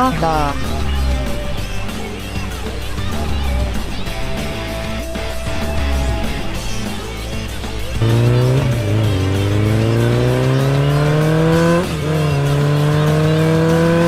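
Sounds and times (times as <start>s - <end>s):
truck engine accelerating: 0.0s - 14.0s.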